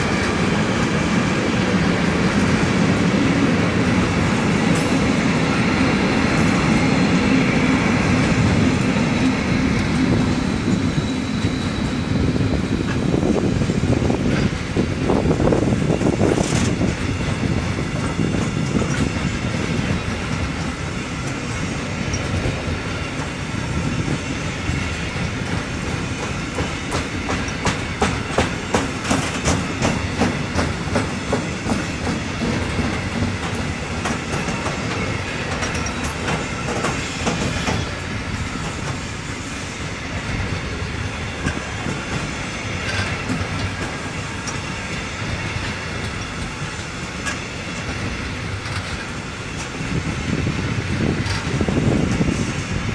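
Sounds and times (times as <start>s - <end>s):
train rumbling past: 0.0s - 52.9s
brief high squeal: 36.9s - 39.9s.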